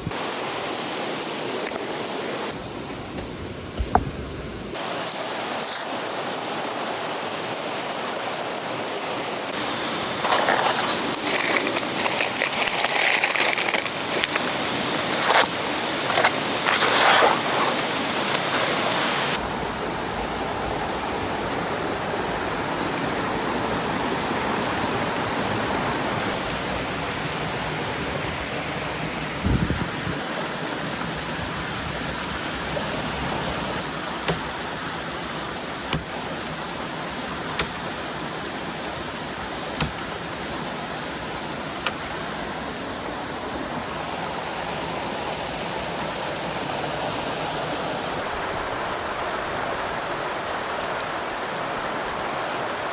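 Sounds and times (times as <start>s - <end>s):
river rushing: 4.7s - 29.4s, 32.0s - 52.9s
clicks and knocks of handled objects: 10.2s - 19.1s.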